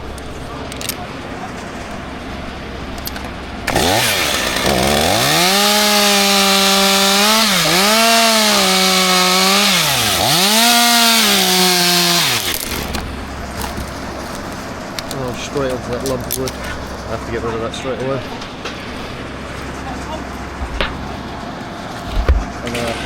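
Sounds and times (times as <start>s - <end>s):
chainsaw cutting wood: 3.7s - 14.4s.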